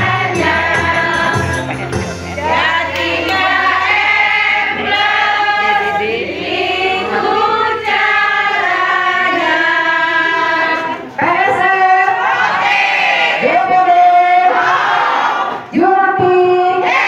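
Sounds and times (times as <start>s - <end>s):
group of women singing: 0.0s - 17.0s.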